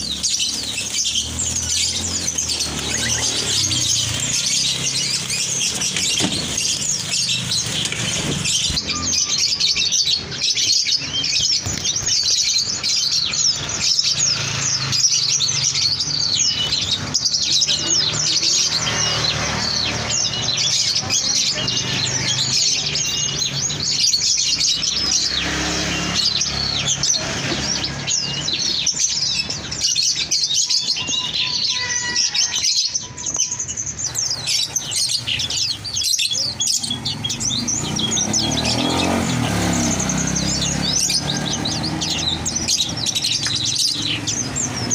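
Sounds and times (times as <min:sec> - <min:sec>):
songbirds chirping and twittering: 0:00.0 - 0:44.9.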